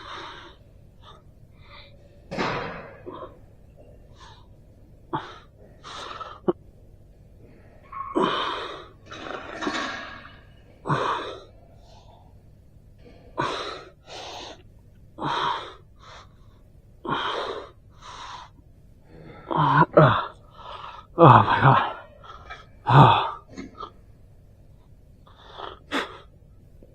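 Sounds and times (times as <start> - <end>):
person breathing hard: 4.1 - 6.6, 13.0 - 14.6, 15.2 - 24.0
person groaning: 19.3 - 20.4, 21.2 - 22.0, 22.8 - 23.5.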